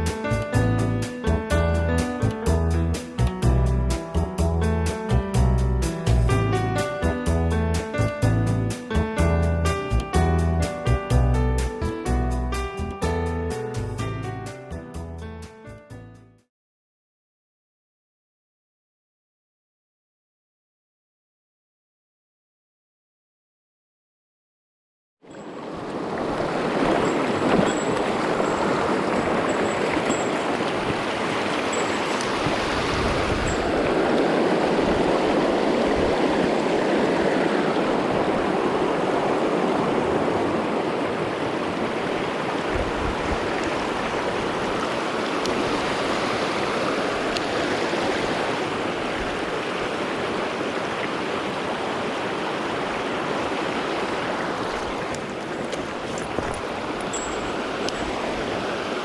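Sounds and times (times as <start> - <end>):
stream flowing over rocks: 25.3 - 59.0.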